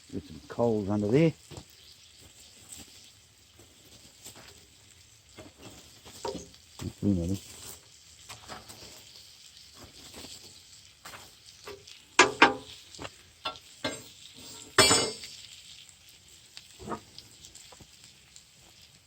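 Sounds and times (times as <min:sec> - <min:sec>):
food sizzling: 0:00.0 - 0:19.0
metal scraping and clinking: 0:13.5 - 0:15.4.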